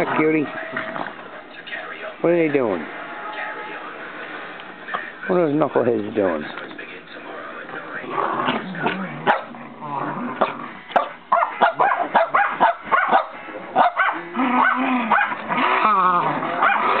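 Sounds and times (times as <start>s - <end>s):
puppies yipping and barking: 10.4s - 17.0s.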